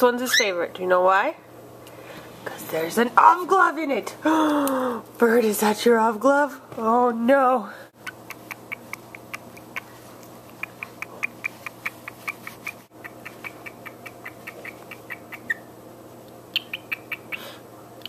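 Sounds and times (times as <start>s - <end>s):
pet bird chirping: 0.2s - 0.6s, 8.0s - 15.7s, 16.5s - 17.6s.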